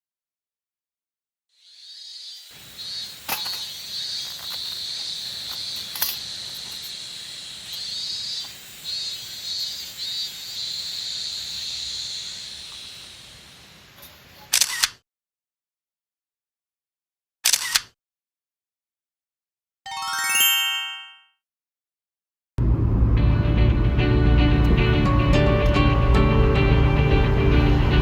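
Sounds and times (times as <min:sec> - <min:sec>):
insects buzzing: 0:01.6 - 0:14.4
camera shutter: 0:14.5 - 0:15.0, 0:17.4 - 0:18.0.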